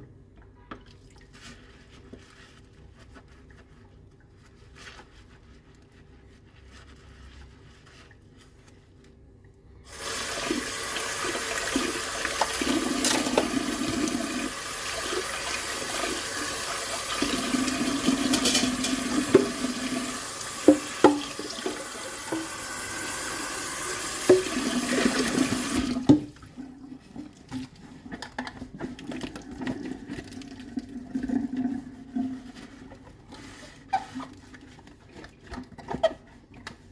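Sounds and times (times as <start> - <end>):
tap water running into sink: 9.9 - 26.6
dishes clinking: 18.0 - 19.5.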